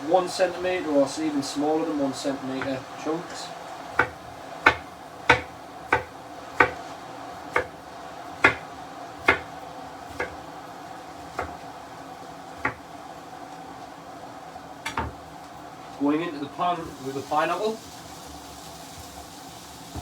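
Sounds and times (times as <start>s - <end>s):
knife chopping on a board: 2.6s - 2.8s, 3.9s - 6.9s, 7.5s - 7.8s, 8.4s - 10.4s, 11.2s - 11.6s, 12.6s - 12.8s, 14.9s - 15.2s.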